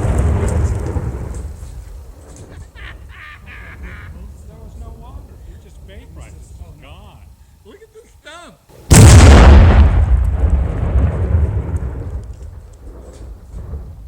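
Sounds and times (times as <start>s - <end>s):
explosive target blast: 8.9s - 12.3s
rumbling echo: 8.9s - 13.8s.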